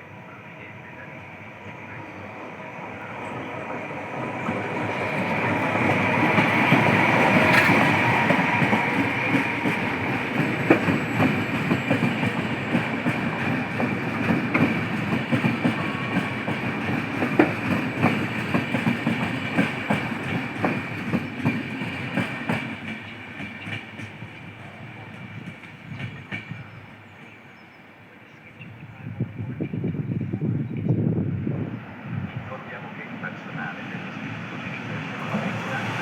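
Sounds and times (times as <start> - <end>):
train rumbling past: 0.0 - 36.0
wheels clacking over rail joints: 3.4 - 24.2.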